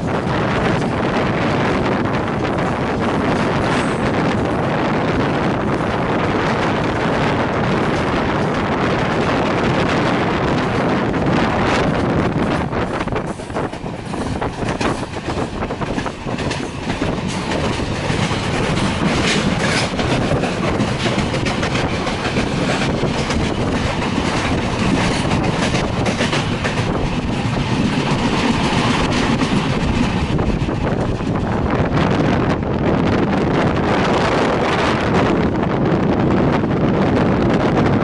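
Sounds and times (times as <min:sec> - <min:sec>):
train rumbling: 0:00.0 - 0:38.0
wheels clattering over rails: 0:07.0 - 0:31.7.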